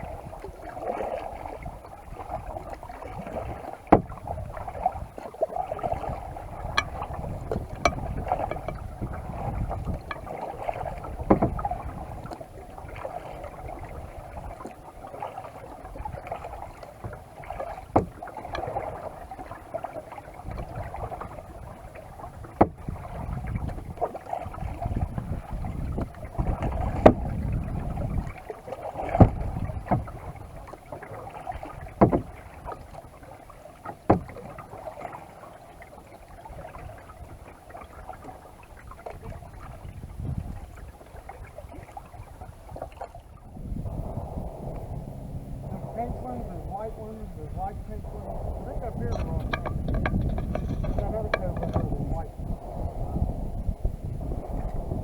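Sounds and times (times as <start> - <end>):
wind on microphone: 0.0 - 33.3, 36.0 - 55.0
paddle splashing water: 0.0 - 55.0
sharp knocks: 6.8 - 8.9, 49.1 - 52.0.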